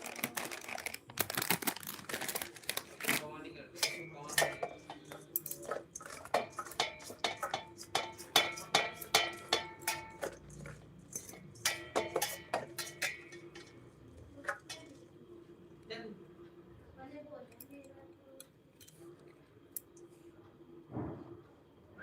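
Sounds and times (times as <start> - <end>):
metal utensil clinking on pot: 3.7 - 15.0.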